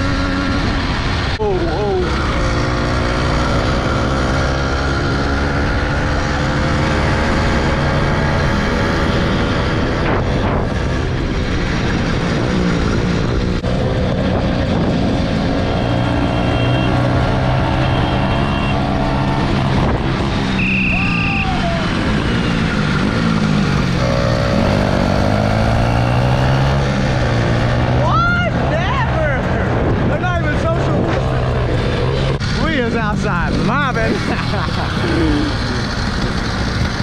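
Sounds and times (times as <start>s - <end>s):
small motorbike engine running: 32.2s - 37.0s.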